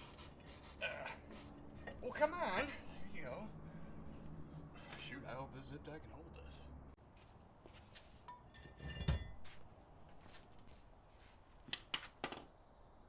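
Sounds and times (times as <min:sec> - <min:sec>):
metal tools clinking and knocking: 0:08.3 - 0:09.4.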